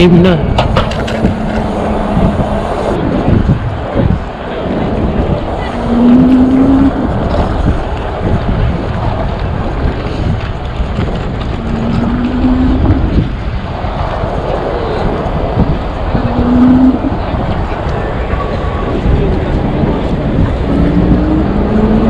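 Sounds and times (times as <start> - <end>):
road and traffic rumble: 0.0 - 22.0
wind on microphone: 0.0 - 22.0
short rising hum: 0.6 - 3.7, 4.8 - 7.9, 11.4 - 13.6.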